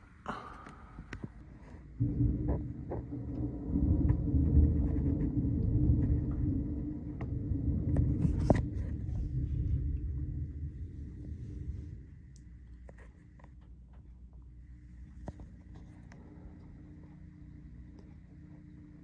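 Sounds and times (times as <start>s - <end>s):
rolling thunder: 1.9s - 13.1s.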